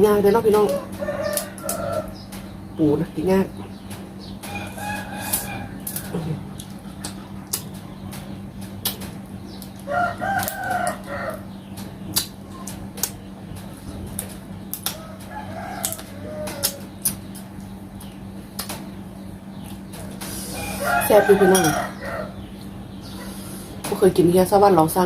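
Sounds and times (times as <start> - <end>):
chicken calling: 0.6 - 2.7, 4.4 - 6.5, 9.8 - 11.6, 14.9 - 17.6, 20.3 - 23.8
crab shell cracking: 14.1 - 18.8.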